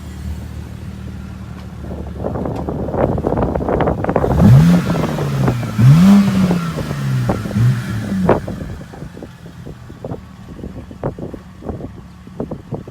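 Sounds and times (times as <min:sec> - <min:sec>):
car accelerating past: 0:04.1 - 0:09.3.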